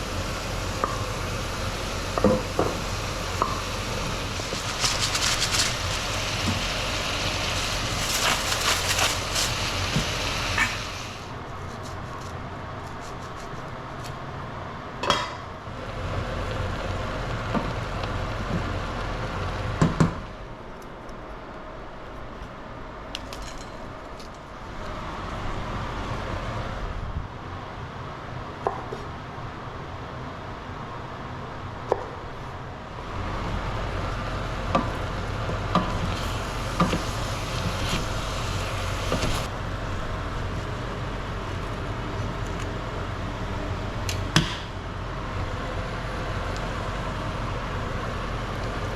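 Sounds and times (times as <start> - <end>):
food sizzling in a pot: 0.0 - 11.3, 36.1 - 39.5.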